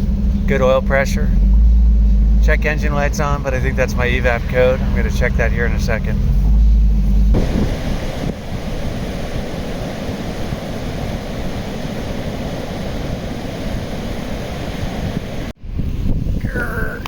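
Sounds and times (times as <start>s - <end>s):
wind and road noise: 0.0s - 17.0s
wind buffeting microphone: 0.0s - 17.0s.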